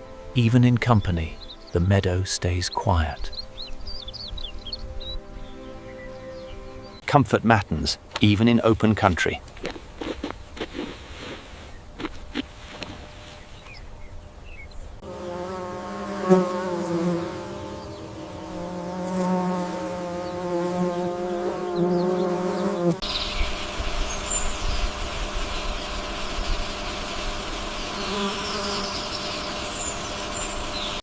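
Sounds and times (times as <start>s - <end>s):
hissy outdoor ambience: 0.0s - 31.0s
flying insect buzzing: 15.0s - 31.0s.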